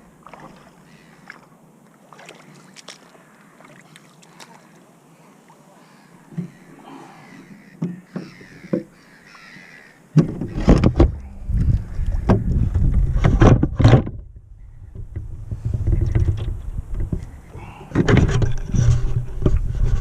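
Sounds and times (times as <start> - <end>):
water rushing and splashing: 0.0 - 13.6.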